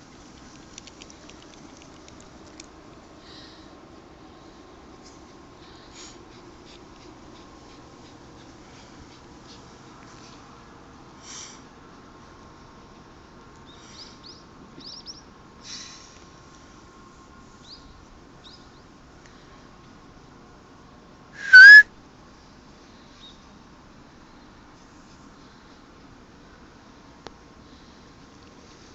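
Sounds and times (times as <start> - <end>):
faint bird-like chirps: 13.7 - 15.3, 21.4 - 21.8
loud high-pitched whistle: 21.4 - 21.9.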